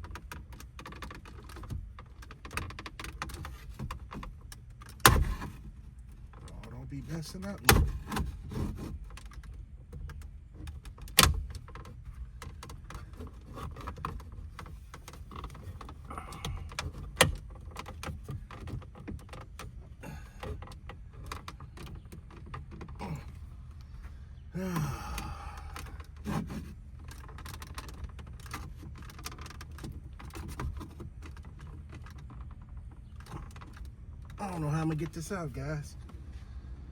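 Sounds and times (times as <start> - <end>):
plastic trim clicking and rattling: 0.0 - 24.1, 25.1 - 34.4
person grunting: 23.0 - 23.4, 24.6 - 25.8.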